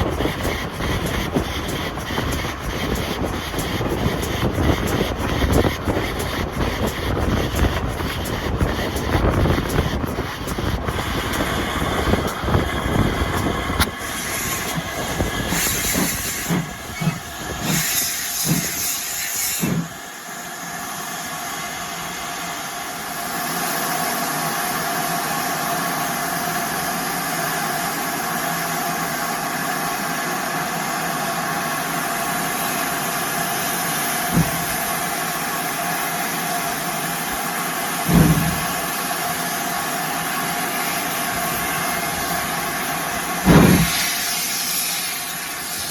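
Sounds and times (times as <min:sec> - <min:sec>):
locomotive steam hissing: 0:00.0 - 0:45.9
irregular rumbling: 0:34.3 - 0:34.9, 0:38.1 - 0:38.9
short knocks: 0:38.1 - 0:38.7.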